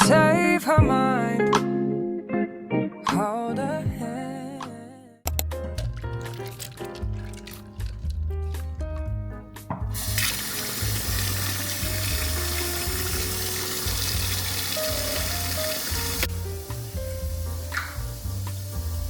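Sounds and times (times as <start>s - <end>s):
background music with beat: 0.0s - 1.9s, 7.8s - 19.0s
tap water running into sink: 9.7s - 19.0s.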